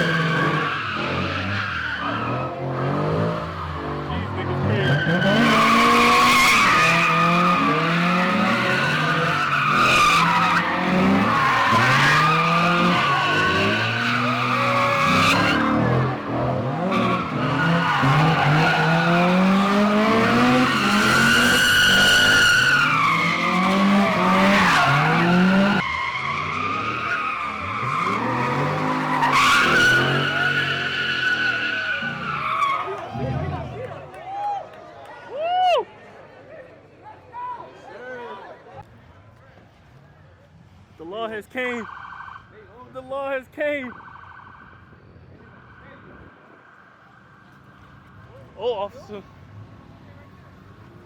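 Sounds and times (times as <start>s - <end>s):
car engines revving hard: 0.0s - 33.9s
tires squealing: 0.0s - 34.6s, 40.9s - 51.0s.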